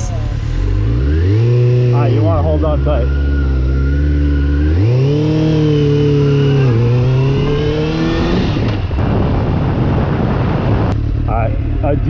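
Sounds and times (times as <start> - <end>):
motorcycle engine accelerating: 0.0 - 12.0
wind noise: 6.6 - 12.0.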